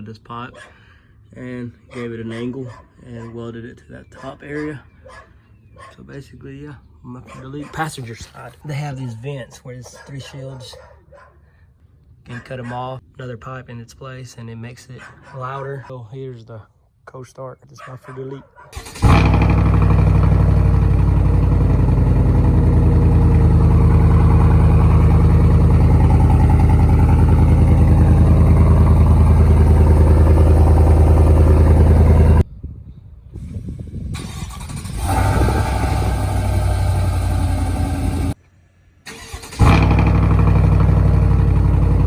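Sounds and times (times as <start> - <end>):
truck exhaust idling drone: 19.0 - 32.4, 35.0 - 38.4, 39.6 - 42.0.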